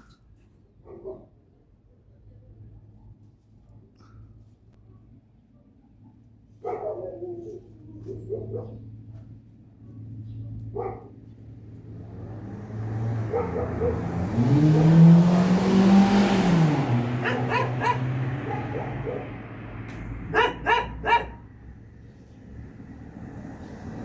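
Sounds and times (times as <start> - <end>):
dog barking: 0.8 - 1.4, 5.6 - 8.9, 10.4 - 11.3, 13.2 - 15.0, 17.1 - 19.6, 20.2 - 21.5.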